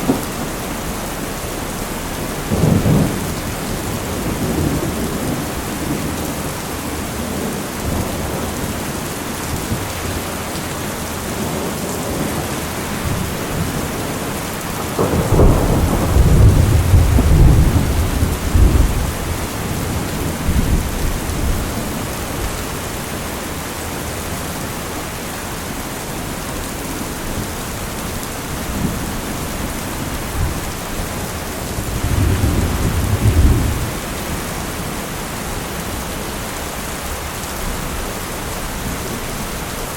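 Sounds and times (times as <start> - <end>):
rolling thunder: 0.0 - 8.9, 11.3 - 22.6, 27.2 - 35.2
steady heavy rain: 0.0 - 39.9.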